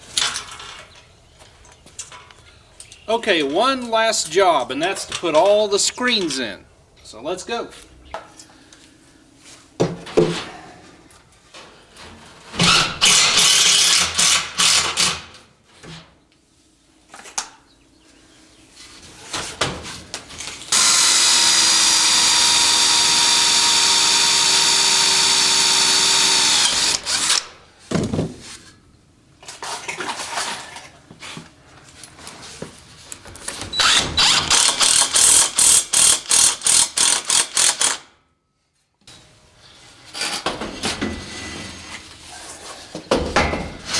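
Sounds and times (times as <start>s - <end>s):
workshop handling noise: 9.5s - 13.0s, 18.8s - 20.7s, 27.1s - 28.8s, 39.9s - 43.9s
power drill running: 12.6s - 15.2s, 20.7s - 27.5s, 33.8s - 38.0s.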